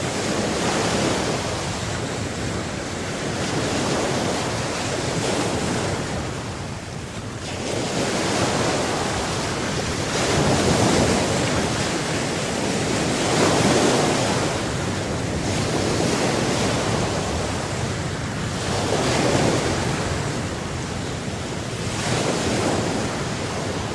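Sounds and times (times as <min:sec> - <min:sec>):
waves washing in: 0:00.0 - 0:23.9
wind on microphone: 0:00.0 - 0:23.9.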